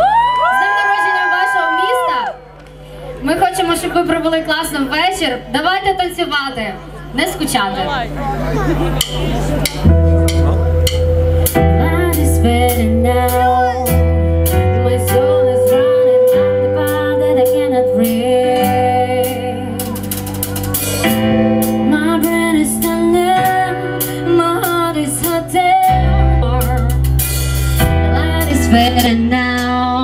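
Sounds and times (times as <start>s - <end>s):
bass guitar: 7.9s - 30.0s
electric guitar: 8.4s - 30.0s
drum kit: 8.7s - 30.0s.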